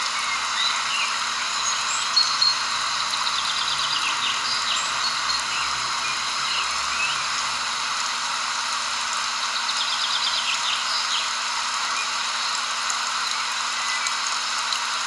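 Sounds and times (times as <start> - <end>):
birds chirping: 0.0 - 8.0, 9.4 - 11.4
running water hiss: 0.0 - 15.0.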